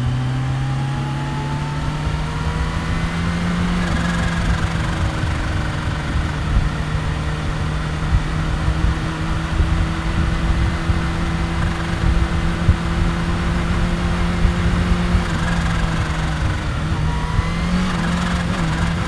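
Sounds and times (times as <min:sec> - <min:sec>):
motorcycle engine running steadily: 0:00.0 - 0:19.0.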